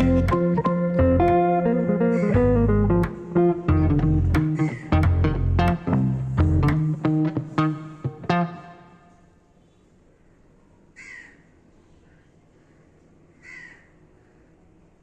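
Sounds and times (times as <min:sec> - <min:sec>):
plucked guitar note: 0:00.0 - 0:09.0
harsh bird calls: 0:02.0 - 0:02.5, 0:03.8 - 0:05.1, 0:11.0 - 0:14.5.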